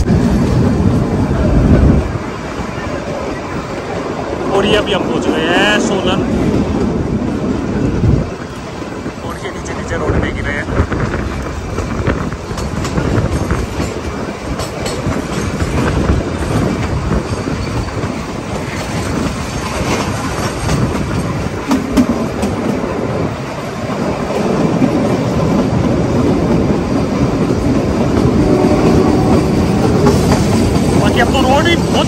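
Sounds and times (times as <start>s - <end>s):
train coaches rumbling: 0.0s - 32.0s
wheels clicking over rail joints: 10.1s - 32.0s.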